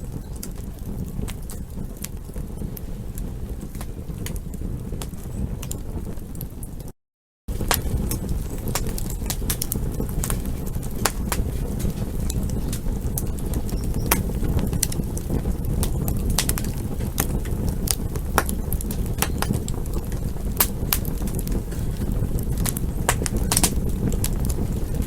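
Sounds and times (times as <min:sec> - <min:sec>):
burning wood crackles and pops: 0:00.0 - 0:25.0
low rush of flames: 0:00.0 - 0:25.0.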